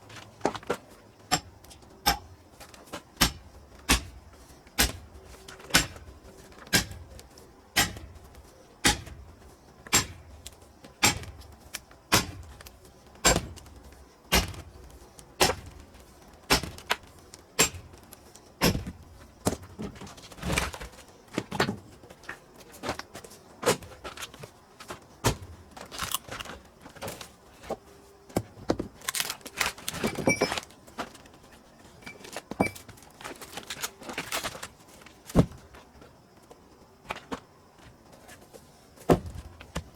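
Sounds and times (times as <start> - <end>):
strikes on firewood: 0.4 - 4.2, 4.8 - 7.2, 7.8 - 8.2, 8.8 - 9.2, 9.9 - 10.4, 11.0 - 14.7, 15.4 - 15.8, 16.5 - 21.8, 25.2 - 27.2
wood clattering: 28.4 - 35.7.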